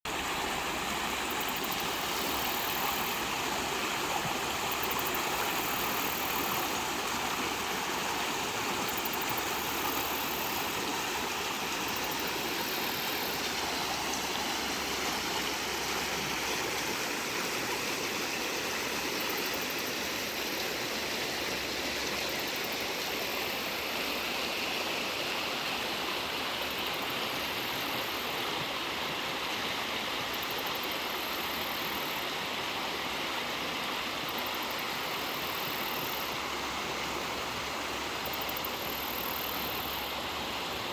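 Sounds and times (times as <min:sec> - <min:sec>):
water gurgling over stones: 0:00.1 - 0:20.4.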